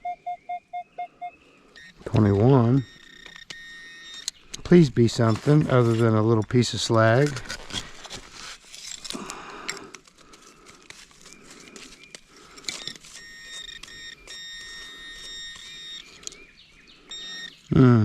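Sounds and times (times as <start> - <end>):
pinpointer high electronic tone: 0.0 - 4.3
digging scraping and rustling: 3.6 - 17.6.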